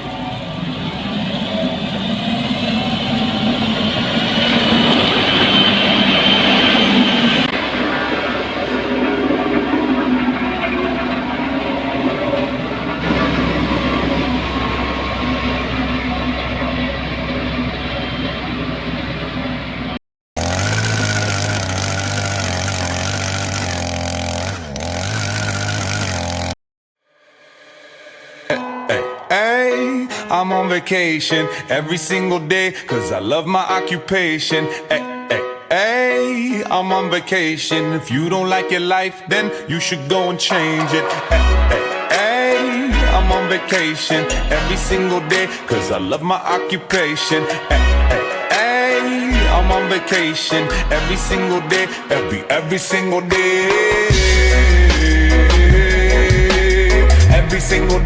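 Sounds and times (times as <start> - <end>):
steady high whine: 0.0 - 20.0
heavy machinery engine running: 0.0 - 26.5.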